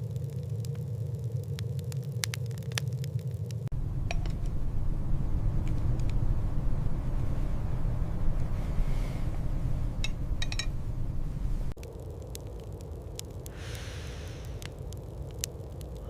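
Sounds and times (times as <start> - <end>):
strong wind rumbling: 3.7 - 16.0.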